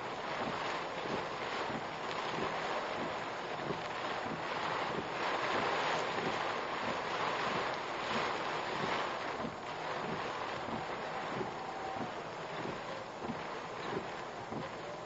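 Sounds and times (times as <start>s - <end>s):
wind and heavy rain on car: 0.0s - 15.0s.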